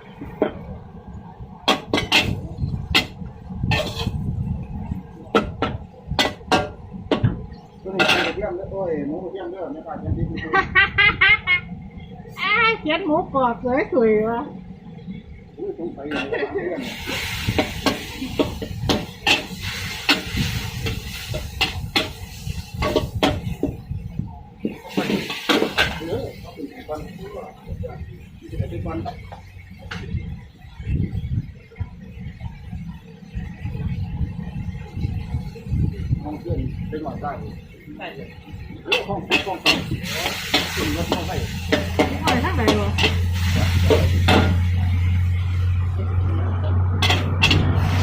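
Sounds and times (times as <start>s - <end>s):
low steady rumble: 0.0s - 48.0s
cooking utensils clanking: 1.7s - 4.2s, 5.3s - 8.4s, 16.1s - 23.8s, 24.6s - 26.4s, 38.8s - 45.2s, 46.9s - 48.0s
metal spatula clanking on a wok: 38.9s - 43.3s, 47.0s - 47.7s.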